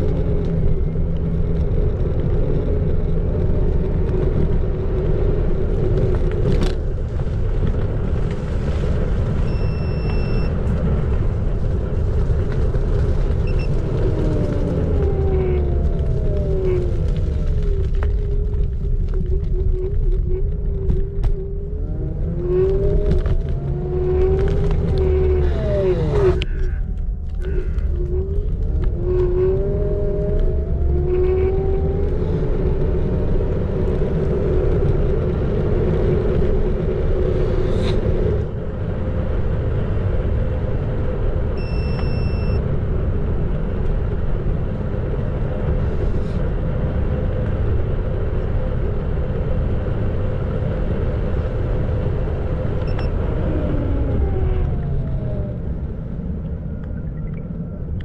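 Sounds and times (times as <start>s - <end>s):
wind and tyre rumble: 0.0s - 58.0s
electric scooter motor whine: 13.2s - 34.1s.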